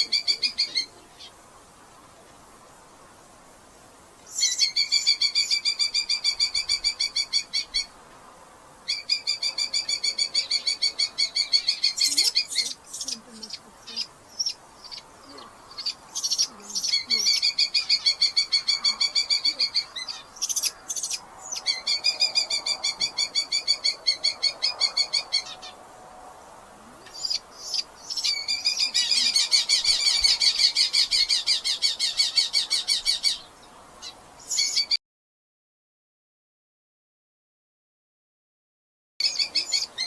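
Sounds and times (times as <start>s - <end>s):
falcons chattering calls: 0.0s - 1.3s, 8.9s - 25.8s, 27.0s - 34.9s.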